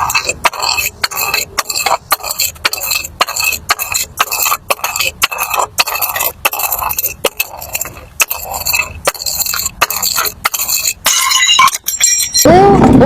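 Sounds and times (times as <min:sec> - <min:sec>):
glass pieces clinking: 0:11.0 - 0:12.5.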